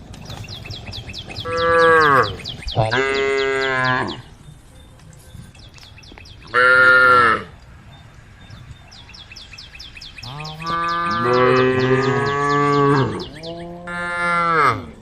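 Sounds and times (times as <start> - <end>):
faint high chirping: 0.2 - 6.6, 7.2 - 13.8
cows mooing: 1.4 - 4.3, 6.4 - 7.6, 10.2 - 15.0.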